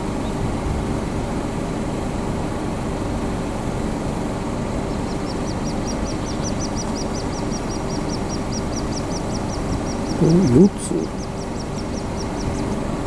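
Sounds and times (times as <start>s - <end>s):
low background rumble: 0.0s - 13.0s
chicks peeping: 4.8s - 13.0s.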